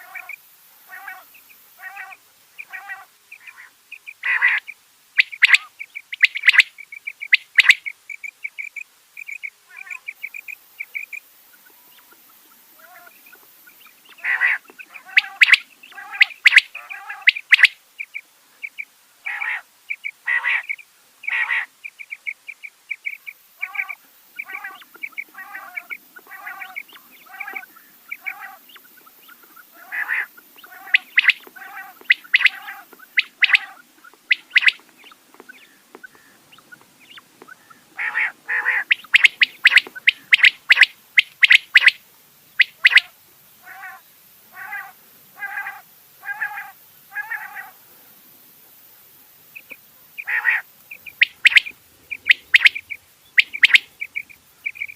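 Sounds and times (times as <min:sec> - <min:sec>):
quail calling in short sharp notes: 0:00.0 - 0:42.0, 0:42.6 - 0:47.8, 0:49.6 - 0:54.9.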